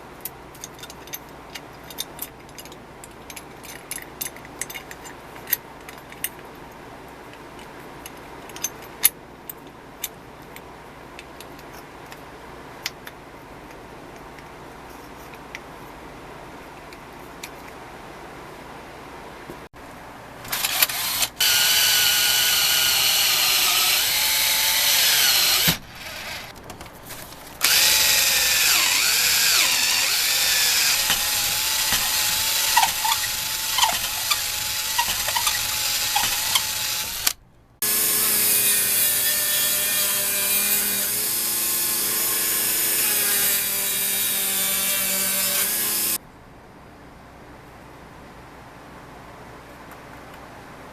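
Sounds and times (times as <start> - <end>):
power tool whining on metal: 20.5 - 26.6, 27.6 - 46.2.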